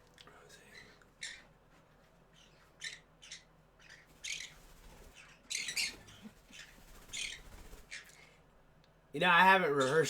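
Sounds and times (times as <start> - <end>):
parrots squawking: 2.4 - 4.6, 5.2 - 8.1.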